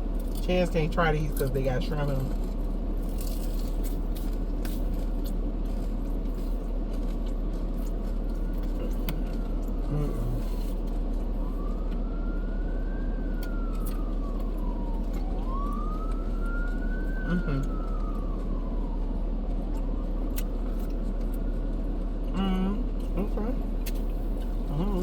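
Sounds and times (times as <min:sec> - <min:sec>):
steady low rumble: 0:00.0 - 0:25.0
emergency siren wailing: 0:06.8 - 0:23.0.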